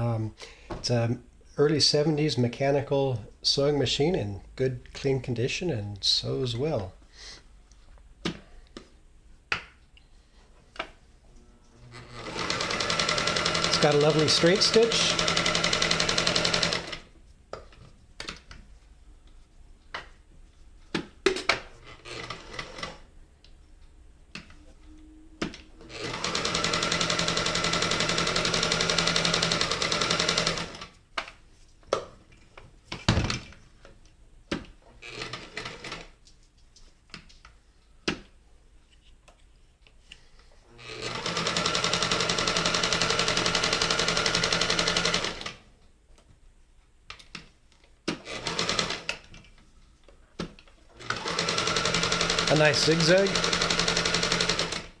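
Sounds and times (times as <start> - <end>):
sewing machine stitching: 11.8 - 17.1, 21.8 - 23.0, 25.4 - 30.9, 35.0 - 36.2, 40.7 - 45.6, 48.1 - 49.3, 50.9 - 55.0.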